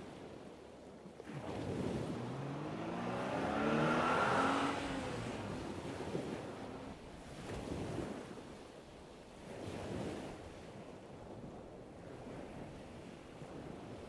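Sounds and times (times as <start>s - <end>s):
lake water lapping: 1.1s - 10.8s
motorboat engine hum: 1.2s - 8.5s.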